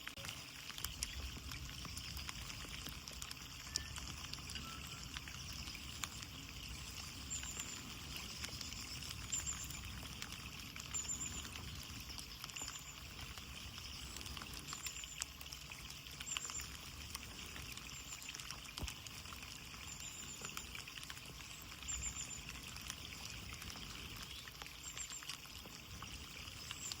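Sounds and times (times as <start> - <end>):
rain hiss: 0.0 - 27.0
rain pattering on window glass: 0.0 - 27.0.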